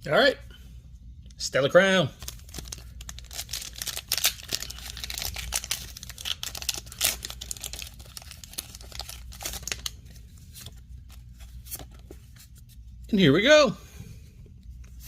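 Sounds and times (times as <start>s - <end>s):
foil wrapper tearing and crinkling: 2.2s - 10.0s.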